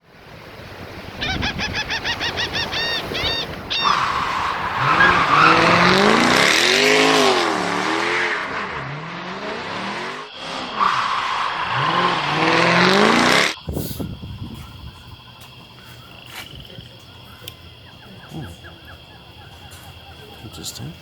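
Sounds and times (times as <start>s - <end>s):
vehicle engine revving: 3.6s - 13.8s.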